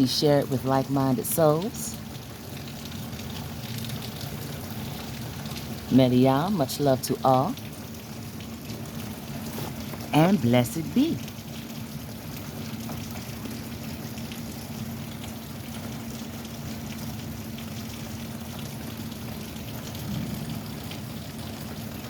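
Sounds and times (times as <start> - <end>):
drips ticking: 0.0 - 22.0
rain falling: 0.0 - 22.0
steady low hum: 18.5 - 22.0.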